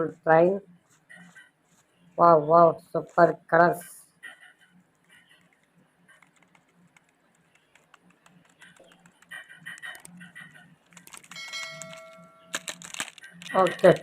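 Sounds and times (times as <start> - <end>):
plastic toys rummaged through: 10.9 - 14.0.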